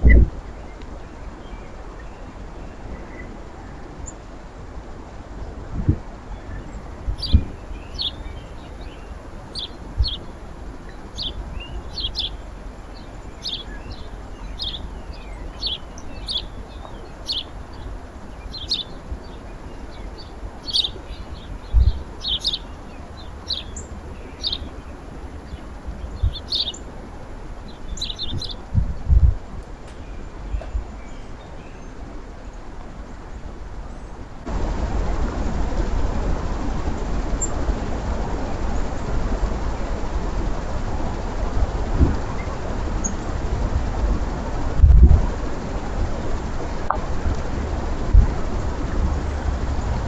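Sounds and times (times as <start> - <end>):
small birds chirping: 6.3 - 31.9
dull low thumps: 6.9 - 24.8, 25.6 - 26.8.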